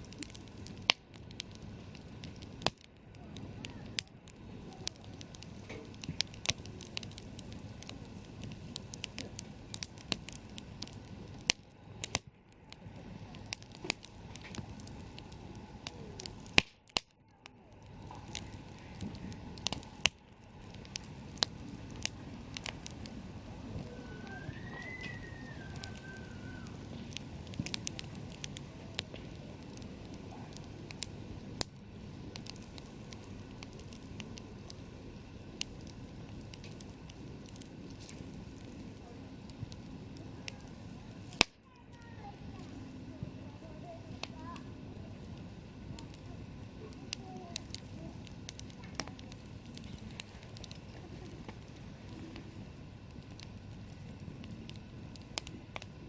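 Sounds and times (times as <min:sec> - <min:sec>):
campfire crackling: 0:00.0 - 0:56.0
low rumble of flames: 0:00.0 - 0:56.0
faint short whistle: 0:23.9 - 0:26.6.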